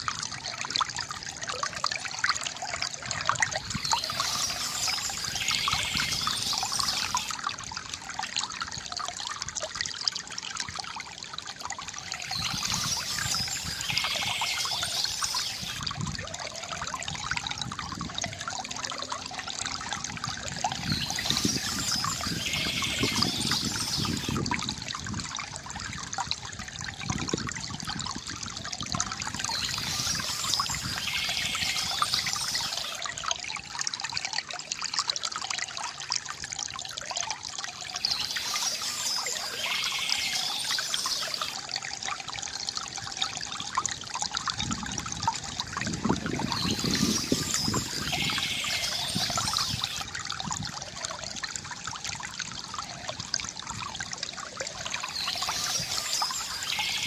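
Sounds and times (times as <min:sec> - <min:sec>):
water trickling from fountain: 0:00.0 - 0:57.0
birds chirping: 0:03.6 - 0:07.4, 0:12.2 - 0:15.8, 0:20.7 - 0:24.4, 0:29.4 - 0:33.0, 0:37.9 - 0:41.6, 0:46.4 - 0:50.0, 0:55.0 - 0:57.0.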